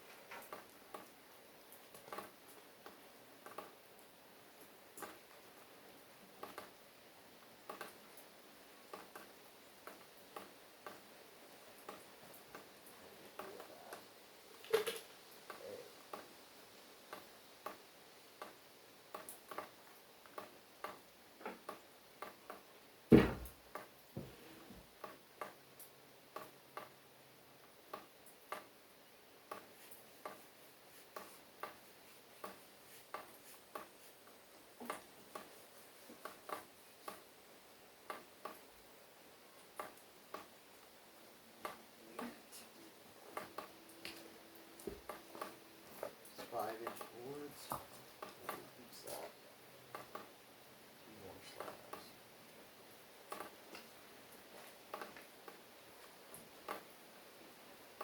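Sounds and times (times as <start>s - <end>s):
loud knock: 23.1s - 23.5s
faint irregular taps: 29.5s - 37.3s, 41.6s - 49.3s.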